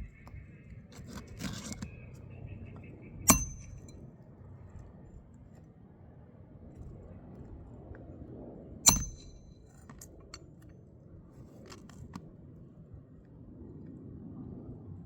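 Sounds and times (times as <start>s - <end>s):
metal tool clink: 3.3s - 3.9s, 8.9s - 10.1s.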